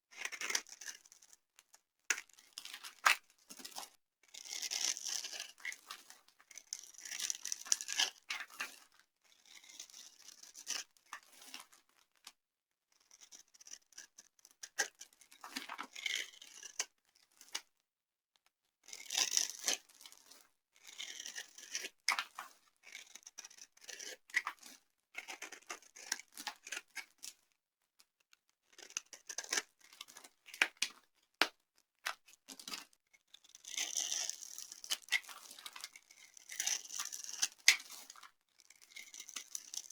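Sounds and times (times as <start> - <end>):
dry soap crunching: 33.6 - 39.9.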